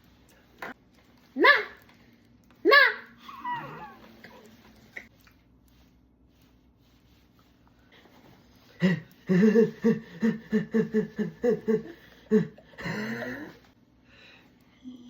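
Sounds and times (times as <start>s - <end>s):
person laughing: 8.7s - 13.7s.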